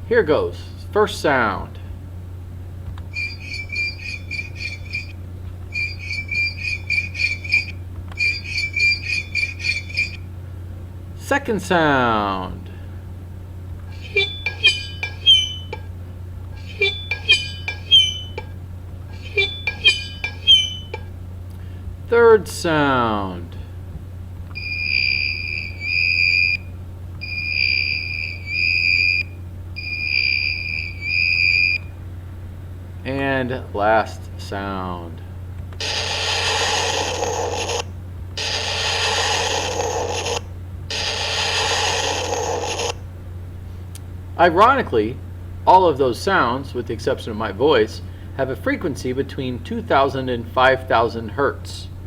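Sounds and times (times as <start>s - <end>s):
high-pitched electronic beeping: 3.1s - 5.1s, 5.7s - 10.2s, 13.9s - 15.9s, 16.6s - 18.5s, 19.1s - 21.1s, 24.6s - 26.6s, 27.2s - 29.2s, 29.8s - 31.8s.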